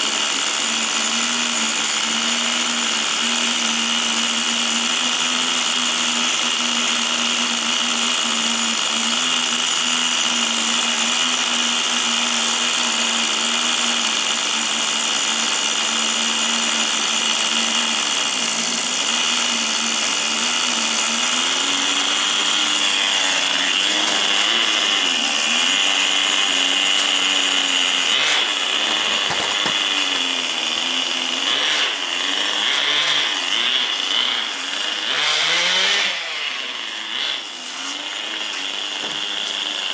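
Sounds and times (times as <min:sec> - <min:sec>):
small nitro engine buzzing: 0:00.0 - 0:39.9.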